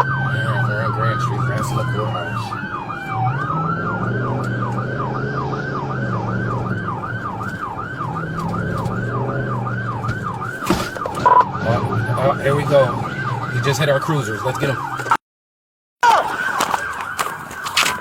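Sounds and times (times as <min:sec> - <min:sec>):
car engine running: 0:00.0 - 0:14.8
police siren yelping: 0:00.0 - 0:15.2, 0:16.0 - 0:18.0.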